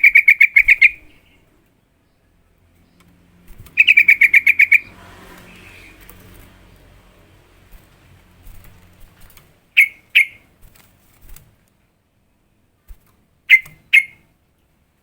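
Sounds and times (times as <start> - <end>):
bird call notes: 3.8 - 5.0, 9.8 - 10.4, 13.5 - 14.2.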